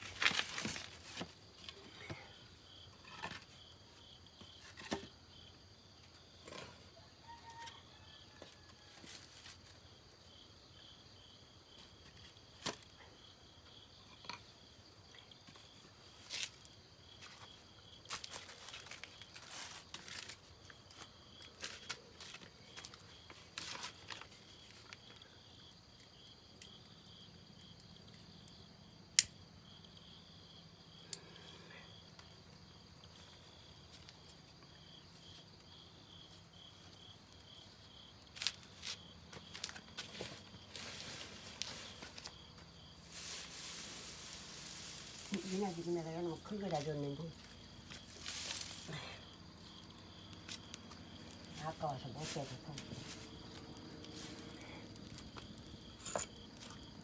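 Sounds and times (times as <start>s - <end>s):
crickets chirping: 0.0s - 57.0s
wood fire snapping and crackling: 38.2s - 52.1s, 52.8s - 57.0s.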